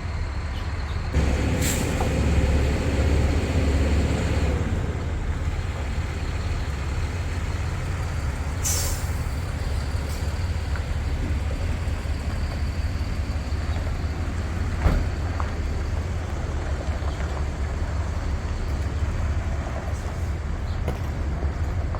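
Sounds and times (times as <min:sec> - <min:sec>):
pickup truck engine rumbling: 0:00.2 - 0:21.9
short hiss: 0:08.6 - 0:09.2.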